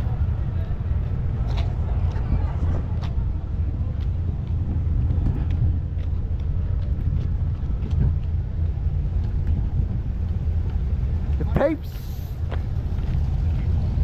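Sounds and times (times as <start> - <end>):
car engine running: 0.0 - 5.2.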